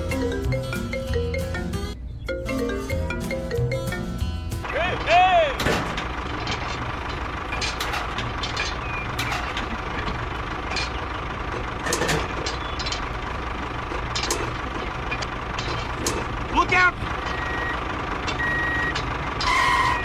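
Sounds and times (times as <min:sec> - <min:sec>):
miniature tractor motor hum: 0:04.6 - 0:20.0
clicks and knocks: 0:04.7 - 0:20.0.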